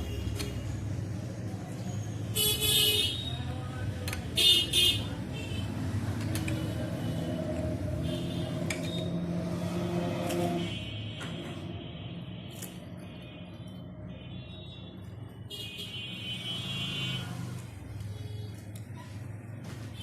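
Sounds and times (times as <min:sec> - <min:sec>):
street traffic hum: 0:00.0 - 0:20.0
car horns: 0:09.9 - 0:12.7.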